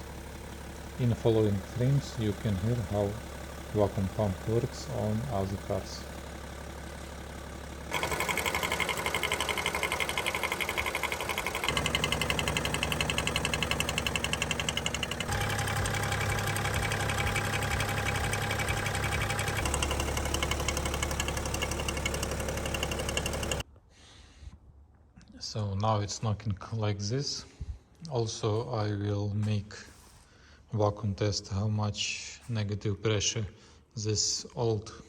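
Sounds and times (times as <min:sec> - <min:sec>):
diesel engines idling: 0:00.0 - 0:23.6
vacuum pump knocking: 0:07.9 - 0:23.6.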